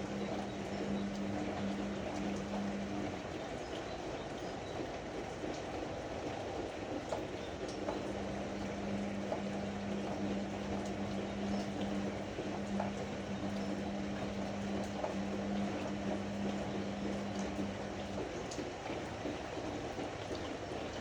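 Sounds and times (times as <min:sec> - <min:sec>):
steady low hum: 0:00.0 - 0:03.4, 0:07.8 - 0:18.4
water rushing in washing machine: 0:00.0 - 0:21.0.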